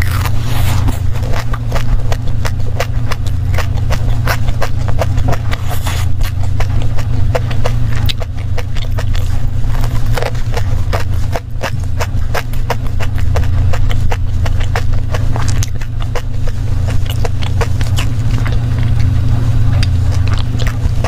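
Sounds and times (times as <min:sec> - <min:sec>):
crunchy chewing: 0:00.0 - 0:21.0
low hum: 0:00.0 - 0:21.0.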